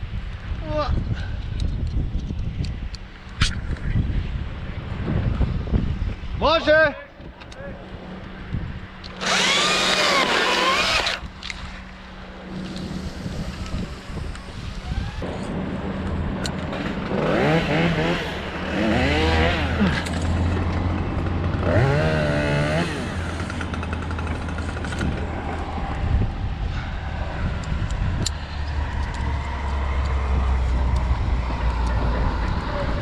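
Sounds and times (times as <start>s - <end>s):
chainsaw engine revving: 9.1s - 11.2s, 16.8s - 25.2s.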